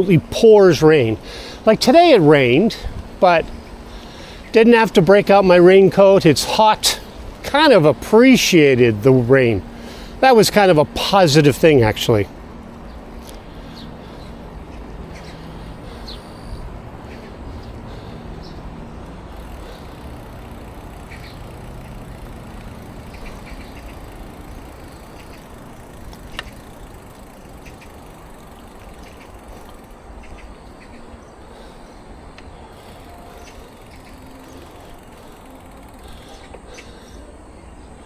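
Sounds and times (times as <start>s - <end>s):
wind and road rumble: 0.0s - 36.8s
low hum: 11.8s - 38.0s.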